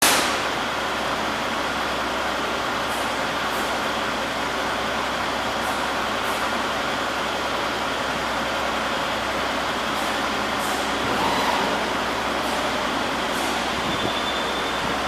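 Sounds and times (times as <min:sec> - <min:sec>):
laser cutting machine rushing: 0:10.0 - 0:15.0.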